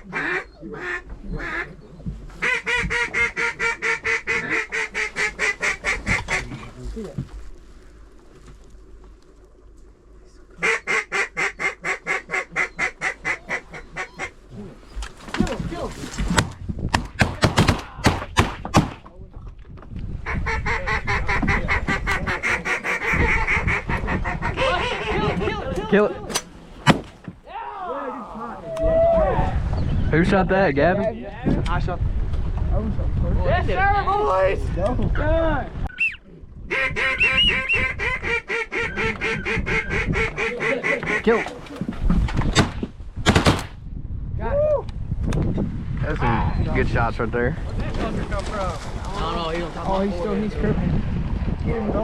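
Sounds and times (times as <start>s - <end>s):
duck quacking: 0.0s - 1.8s, 2.4s - 6.6s, 10.6s - 14.4s, 20.3s - 25.6s, 36.7s - 41.5s
geese honking: 0.0s - 1.8s, 2.4s - 6.5s, 10.6s - 14.5s, 20.3s - 25.8s, 36.7s - 41.6s.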